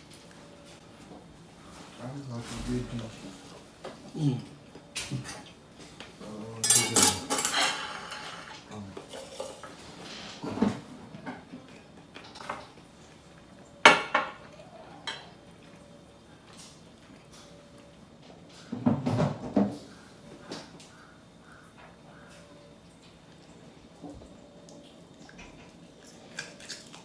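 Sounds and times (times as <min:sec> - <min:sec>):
dishes and cutlery clattering: 0:06.6 - 0:11.5, 0:13.9 - 0:15.4.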